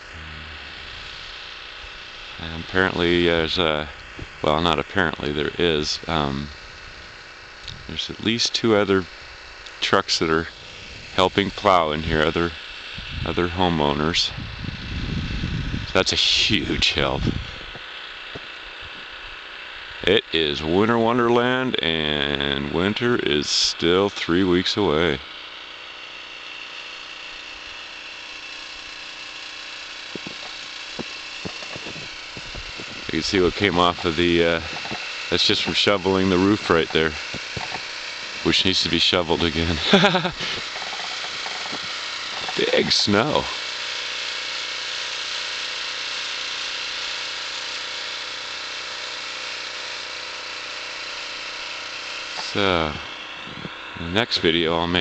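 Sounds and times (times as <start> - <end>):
constant hiss: 0.0 - 55.0
engine idling: 0.0 - 55.0.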